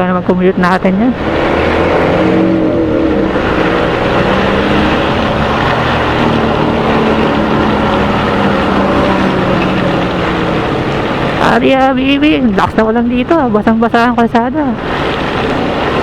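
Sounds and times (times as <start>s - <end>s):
motorcycle engine cruising: 0.0s - 16.0s
rain hiss on wet road: 1.2s - 11.5s, 14.8s - 16.0s.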